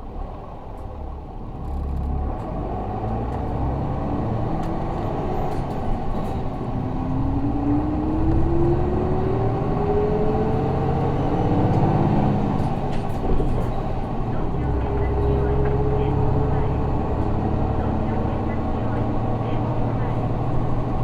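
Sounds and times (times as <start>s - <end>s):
bus diesel engine accelerating: 0.0s - 21.0s.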